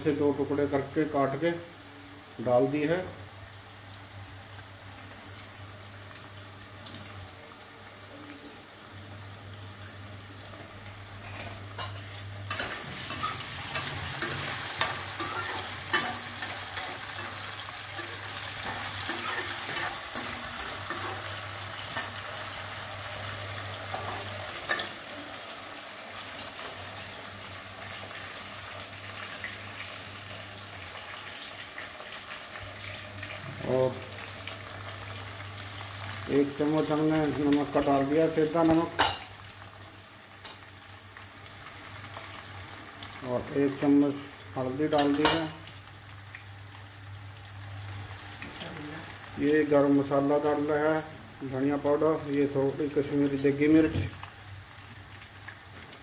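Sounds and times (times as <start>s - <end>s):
food sizzling in oil: 0.0s - 56.0s
metal spoon scraping pan: 11.2s - 22.2s.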